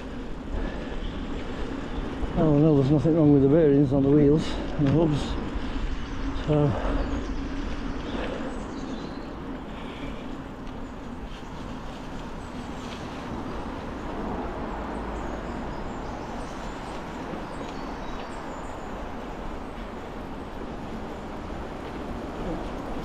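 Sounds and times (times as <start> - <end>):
bike tyres rolling on trail: 0.0 - 23.0.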